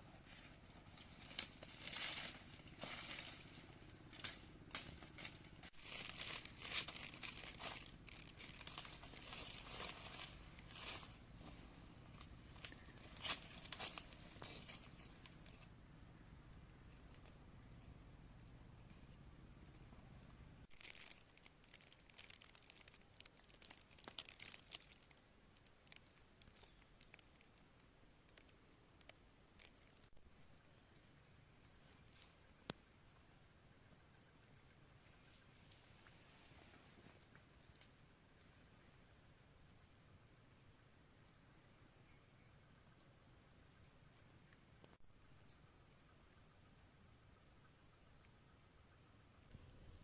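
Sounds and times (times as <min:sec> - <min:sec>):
material crinkling and rustling: 0:00.2 - 0:15.6, 0:20.7 - 0:30.2.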